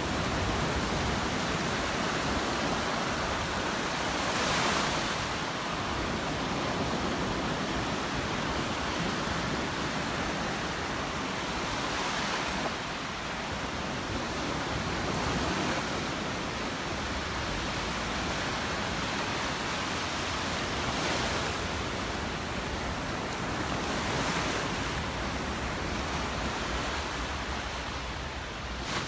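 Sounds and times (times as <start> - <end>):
surf washing onto beach: 0.0 - 29.0.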